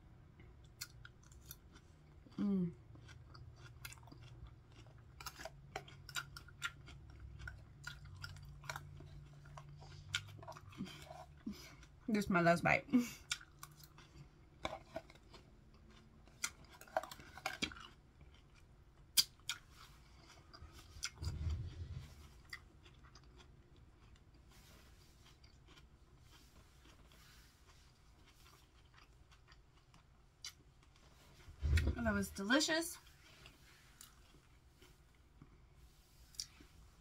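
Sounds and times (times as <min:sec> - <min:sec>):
crisp crunching chewing: 0:00.6 - 0:12.1, 0:13.2 - 0:31.2.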